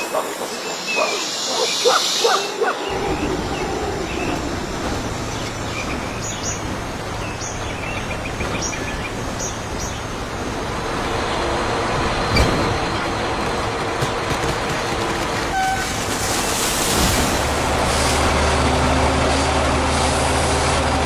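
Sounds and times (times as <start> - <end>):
steady rushing noise: 0.0 - 12.2.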